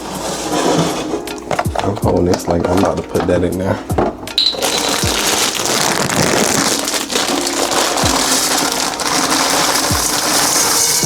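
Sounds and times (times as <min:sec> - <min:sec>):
background music: 0:00.0 - 0:11.0
thuds: 0:01.3 - 0:04.4
liquid sizzling in hot pot: 0:04.4 - 0:11.0.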